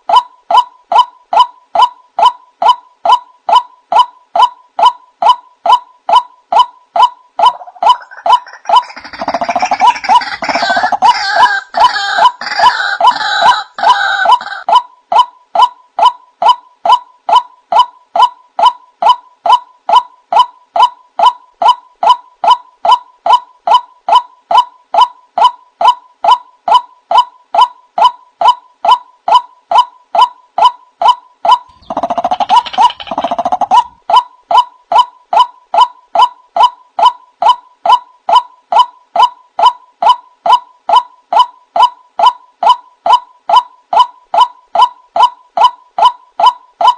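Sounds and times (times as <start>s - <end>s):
harsh bird chattering: 7.4s - 14.6s, 31.5s - 34.0s
waterhen wak calls: 7.4s - 14.6s, 31.6s - 34.0s.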